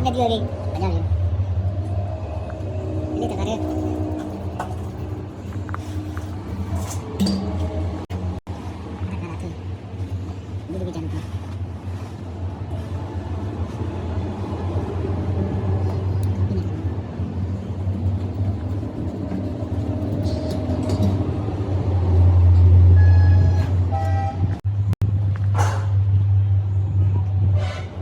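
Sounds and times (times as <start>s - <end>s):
engine rumbling: 0.0s - 28.0s.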